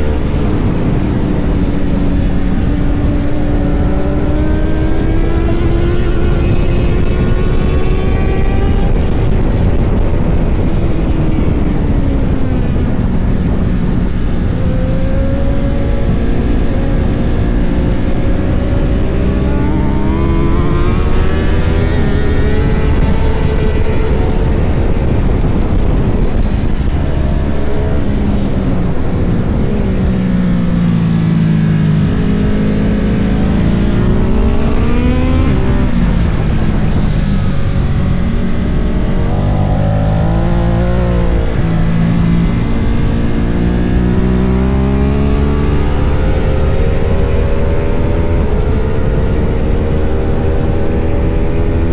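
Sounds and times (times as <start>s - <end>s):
motorcycle engine accelerating: 0.0s - 51.9s
low rush of noise: 20.3s - 49.8s.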